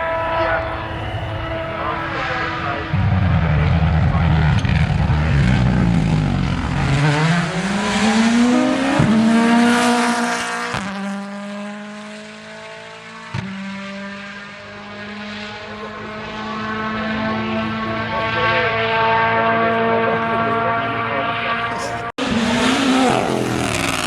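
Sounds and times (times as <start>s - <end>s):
rally car engine accelerating: 0.0s - 24.0s
sharp exhaust cracks: 21.6s - 24.0s.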